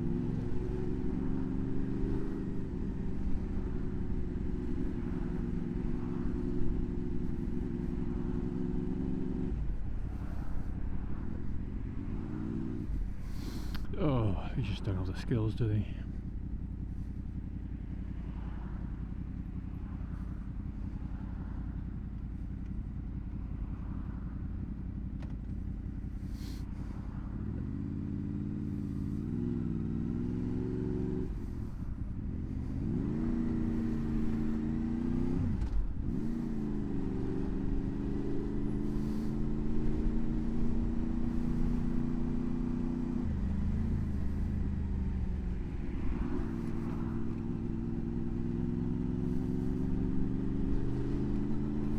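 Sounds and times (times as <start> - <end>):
motorcycle engine revving: 27.4 - 51.9.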